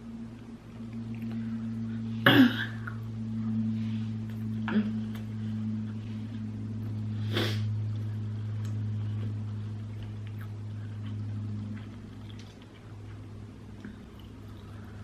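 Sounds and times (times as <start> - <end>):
low hum: 0.0 - 15.0
person sniffing: 7.2 - 7.7.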